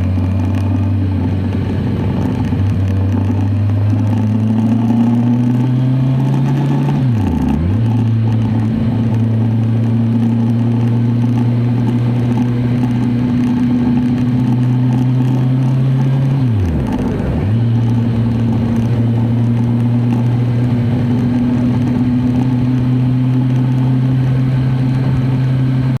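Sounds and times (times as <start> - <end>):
motorcycle engine cruising: 0.0 - 26.0.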